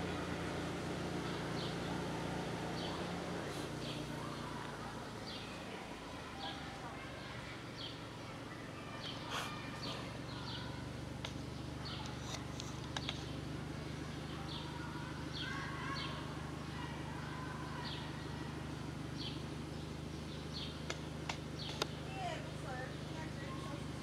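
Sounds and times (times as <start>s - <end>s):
low background hum: 0.0s - 24.0s
small birds chirping: 0.0s - 24.0s
faint clicks: 11.2s - 11.4s, 12.0s - 13.4s, 20.8s - 22.0s.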